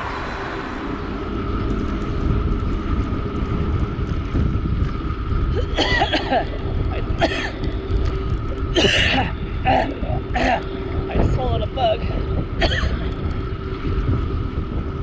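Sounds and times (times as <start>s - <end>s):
wind rumble on microphone: 0.0s - 15.0s
person coughing and spluttering: 5.6s - 7.7s, 8.8s - 10.7s, 12.6s - 13.0s.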